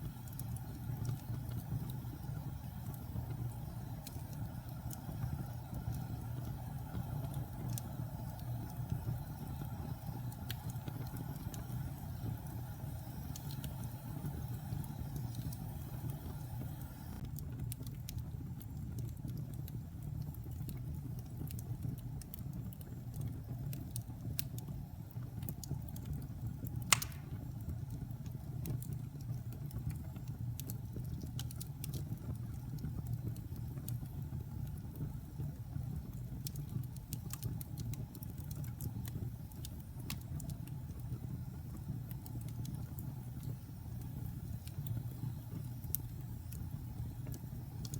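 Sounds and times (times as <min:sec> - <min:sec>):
fire crackling: 0:00.0 - 0:47.9
wood fire rumbling: 0:00.0 - 0:47.9
sharp pop of fire: 0:26.9 - 0:27.6.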